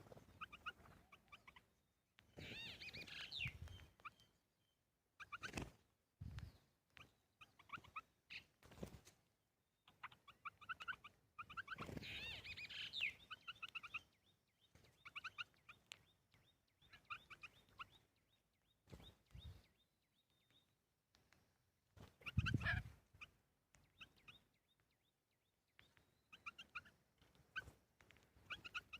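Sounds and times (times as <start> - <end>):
birds calling: 0.0 - 4.4, 9.8 - 20.8, 22.0 - 28.9.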